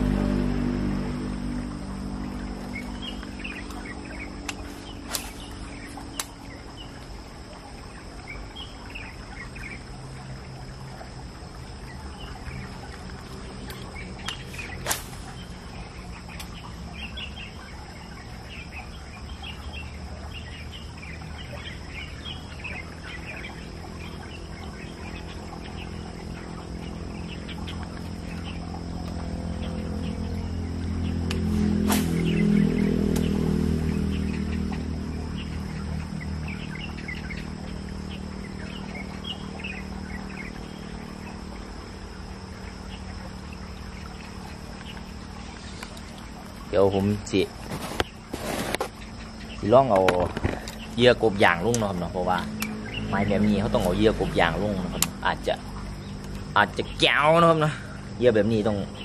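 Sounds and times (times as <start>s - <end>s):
low hum: 0.0s - 59.0s
birds chirping and calling: 1.5s - 59.0s.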